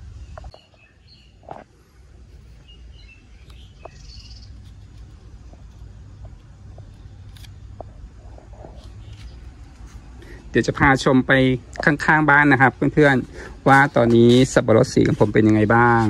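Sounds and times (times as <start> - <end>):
bird chirps: 0.0 - 1.6, 2.5 - 4.8
low background rumble: 0.0 - 13.8.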